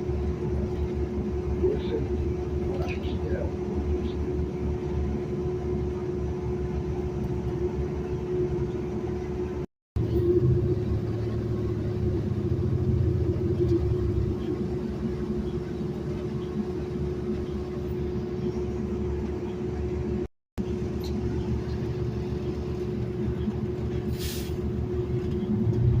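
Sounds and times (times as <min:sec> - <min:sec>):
bus engine and road rumble: 0:00.0 - 0:26.0
constant hum: 0:00.0 - 0:26.0
short hiss of air: 0:24.1 - 0:24.6.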